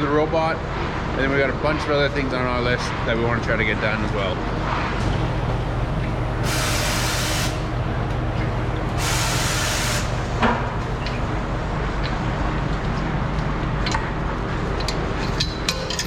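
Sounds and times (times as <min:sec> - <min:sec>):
low machinery hum: 0:00.0 - 0:16.0
sharp hissing bursts: 0:06.4 - 0:07.7, 0:09.0 - 0:10.3.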